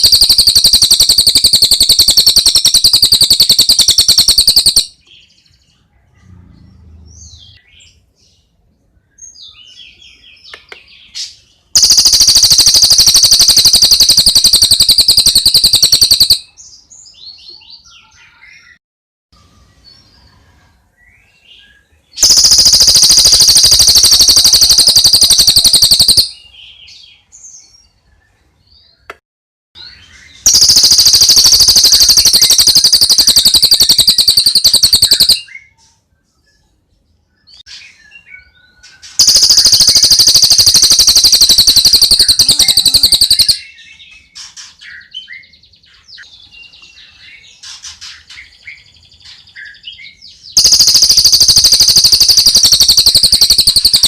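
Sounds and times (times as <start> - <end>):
bird fast high-pitched trill: 0.0 - 5.1, 11.8 - 16.6, 22.2 - 26.5, 29.8 - 35.6, 39.0 - 43.9, 50.5 - 54.0
faint bird chirps: 0.0 - 18.8, 19.4 - 29.2, 29.8 - 54.0.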